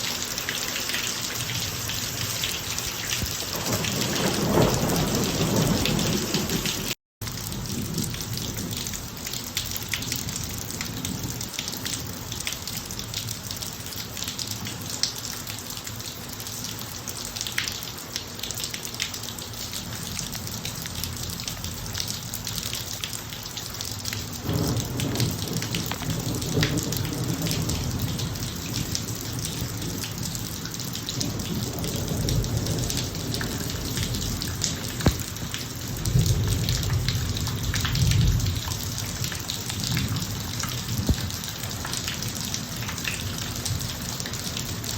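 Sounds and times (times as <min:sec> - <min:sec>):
rain falling on a driveway: 0:00.0 - 0:44.9
thunder rumbling: 0:03.2 - 0:09.0, 0:24.4 - 0:30.4, 0:31.1 - 0:41.6.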